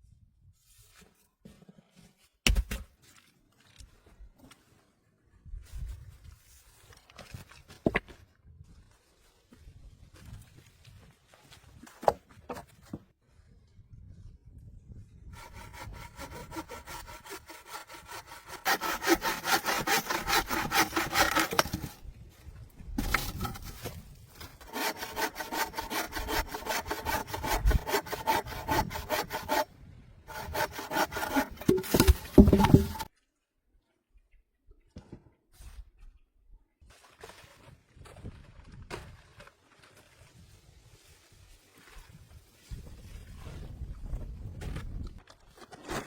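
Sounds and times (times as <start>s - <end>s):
saw cutting wood: 15.4s - 22.0s, 23.0s - 23.8s, 24.4s - 29.7s, 30.3s - 33.1s
knocks: 31.2s - 33.1s.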